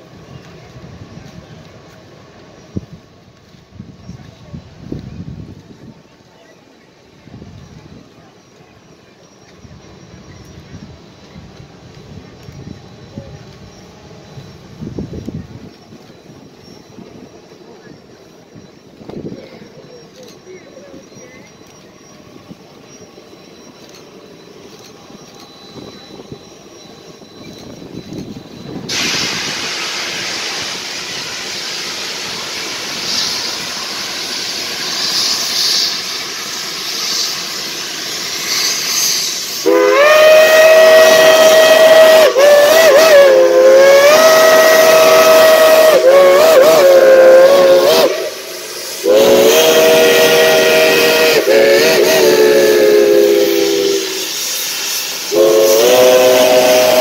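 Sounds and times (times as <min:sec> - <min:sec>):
locomotive steam hissing: 0:00.0 - 0:57.0
steam whistle blasts: 0:28.6 - 0:57.0.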